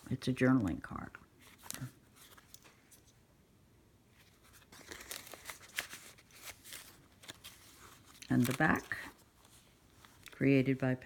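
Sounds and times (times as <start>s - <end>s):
paper and card rustling: 1.4s - 3.2s, 4.1s - 10.8s.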